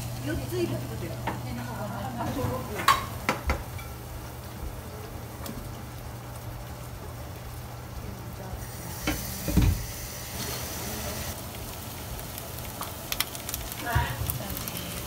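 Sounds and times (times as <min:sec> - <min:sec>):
patties sizzling in frying pan: 0:00.0 - 0:15.0.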